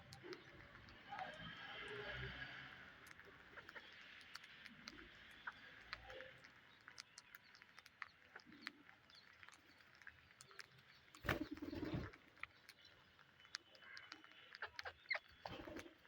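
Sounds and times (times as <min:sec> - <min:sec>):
bird clicks and chirps: 0:00.0 - 0:16.0.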